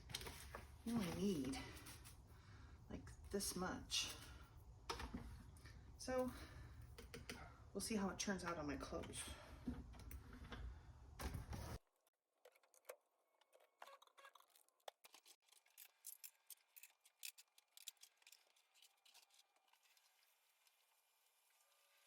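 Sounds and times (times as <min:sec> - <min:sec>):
rustling handling noise: 0:00.0 - 0:02.3.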